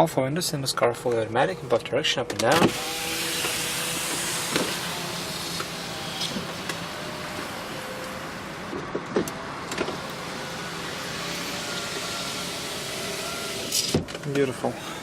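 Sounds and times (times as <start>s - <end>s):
power window motors running: 1.7s - 15.0s
window squeaks: 9.9s - 14.2s.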